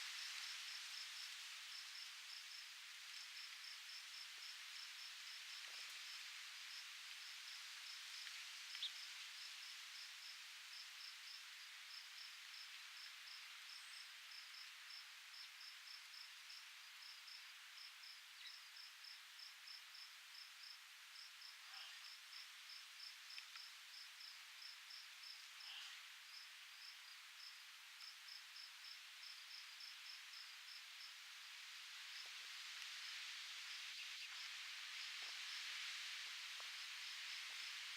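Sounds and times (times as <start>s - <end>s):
insect chirping: 7.3s - 36.0s.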